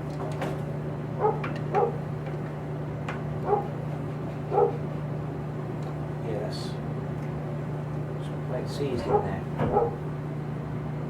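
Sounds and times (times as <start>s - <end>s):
dog barking: 1.2s - 2.0s, 3.5s - 3.7s, 4.5s - 4.8s, 9.1s - 10.0s.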